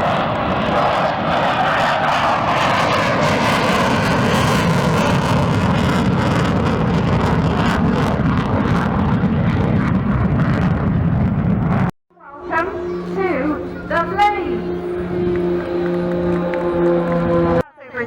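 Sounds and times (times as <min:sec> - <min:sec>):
aircraft engine drone: 0:00.0 - 0:18.0.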